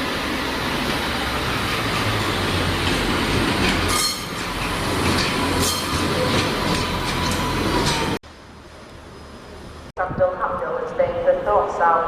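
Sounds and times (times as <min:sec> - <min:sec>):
train wheels rumbling on track: 0:00.0 - 0:09.9
train clanks: 0:00.7 - 0:08.2.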